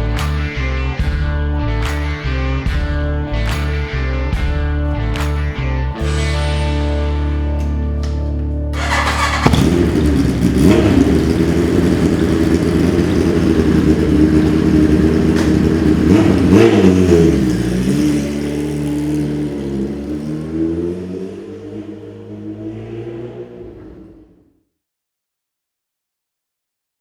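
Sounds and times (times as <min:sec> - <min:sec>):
motorcycle engine revving: 0:08.8 - 0:24.5.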